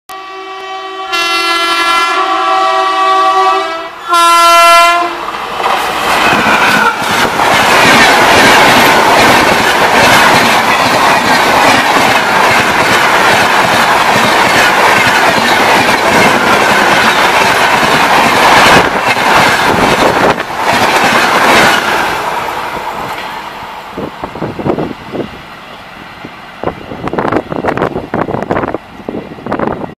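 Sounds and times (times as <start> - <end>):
train horn blasts: 0.1 - 5.2
train passing wheel rush: 0.2 - 29.9.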